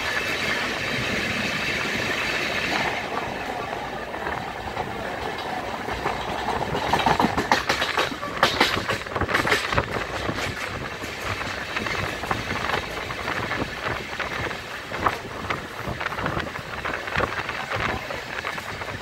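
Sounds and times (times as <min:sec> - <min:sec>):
train wheels clattering on rails: 0:00.0 - 0:19.0
wind on microphone: 0:00.0 - 0:19.0.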